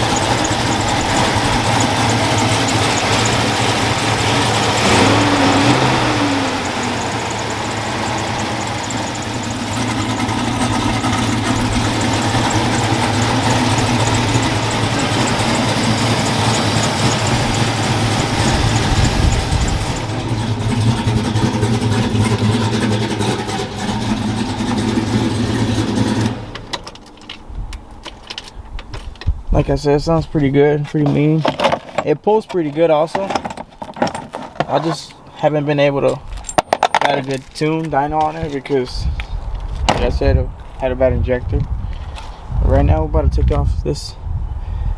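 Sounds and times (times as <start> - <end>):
truck engine idling: 0.0 - 28.1.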